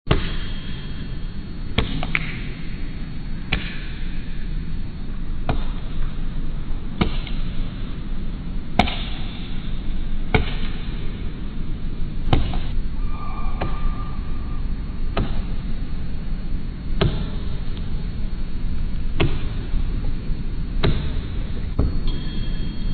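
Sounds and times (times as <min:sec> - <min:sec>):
low rumble: 0:12.1 - 0:16.8.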